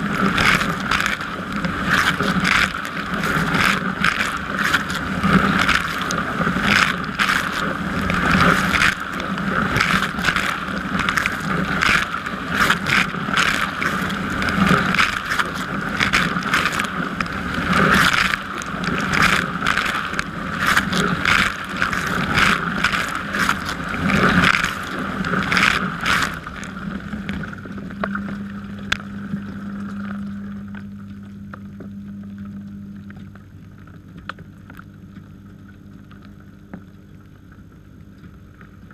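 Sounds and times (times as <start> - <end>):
dishwasher low hum: 0.0 - 38.9.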